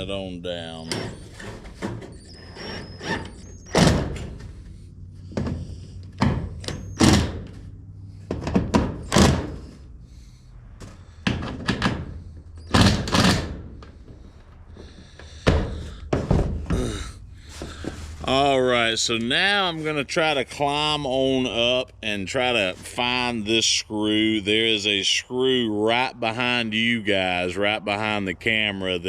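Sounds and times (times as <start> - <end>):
thuds on metal roofing: 5.2 - 7.6, 8.2 - 9.8, 14.8 - 18.2.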